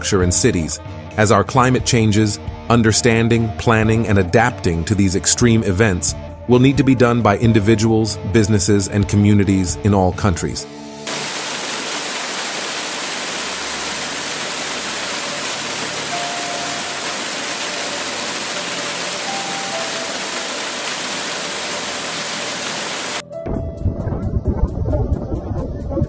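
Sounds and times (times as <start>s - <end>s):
water rushing: 11.1s - 23.2s.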